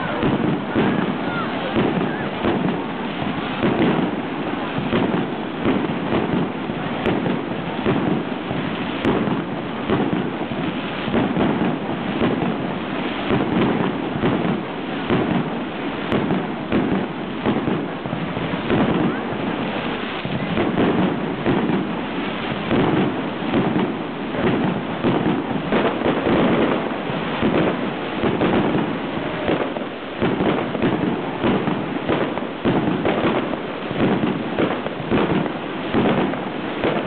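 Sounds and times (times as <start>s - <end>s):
fireworks bangs and pops: 0.0s - 37.0s.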